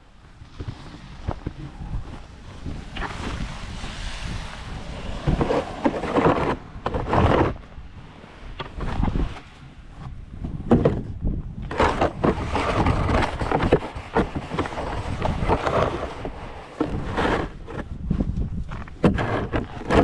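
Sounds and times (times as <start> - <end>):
steady low rumble: 0.0 - 11.7
snow shovel scraping snow: 0.3 - 7.7, 11.7 - 17.9, 18.8 - 20.0.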